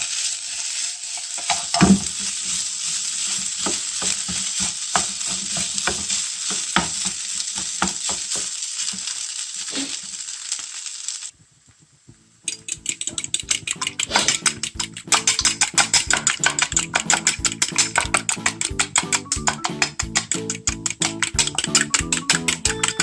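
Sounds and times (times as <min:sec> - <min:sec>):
spatula stirring and tapping: 0:00.0 - 0:09.2, 0:12.4 - 0:23.0
food sizzling in a frying pan: 0:00.0 - 0:23.0
plucked guitar music with beat: 0:12.6 - 0:23.0.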